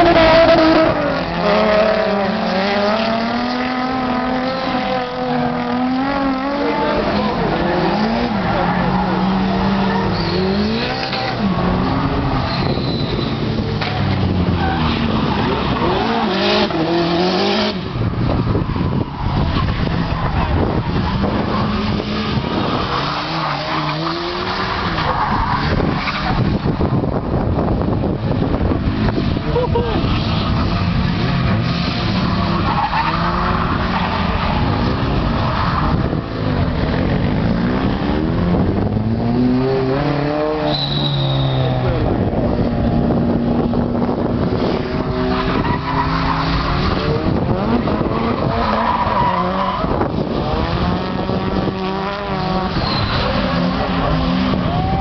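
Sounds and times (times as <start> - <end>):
constant rushing noise: 0.0 - 40.2
car engines revving: 0.0 - 55.0.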